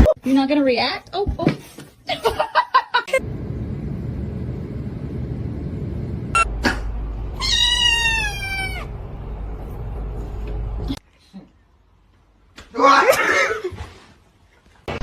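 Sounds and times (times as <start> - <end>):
steady low rumble: 3.2 - 11.0
cat meowing: 7.4 - 8.9.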